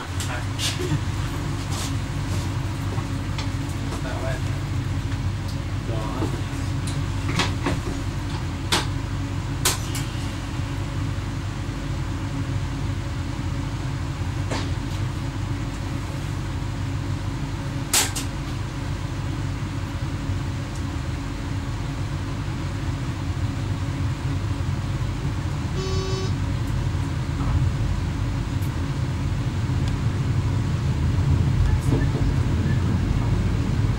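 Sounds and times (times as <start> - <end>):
low rumble of running train: 0.0 - 33.9
short electronic beep: 25.8 - 26.4.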